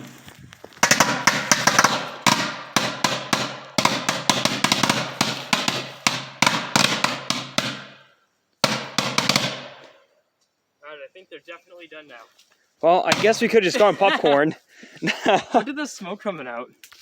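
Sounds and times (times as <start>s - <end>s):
firecrackers banging in microwave: 0.8s - 8.0s, 8.6s - 9.9s.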